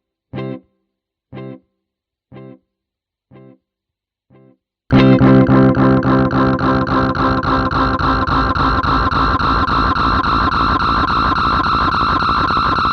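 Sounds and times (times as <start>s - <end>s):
electric guitar chord with delay: 4.9s - 12.9s.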